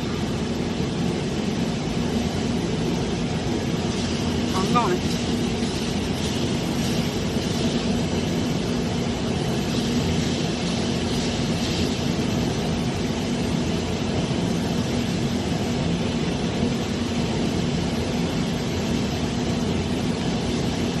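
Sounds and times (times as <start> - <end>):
lathe running: 0.0 - 14.9.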